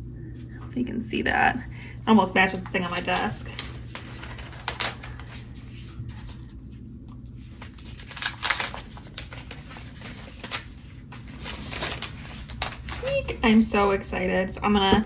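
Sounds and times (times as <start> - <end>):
packaging rustling: 1.7 - 6.6, 7.3 - 13.7.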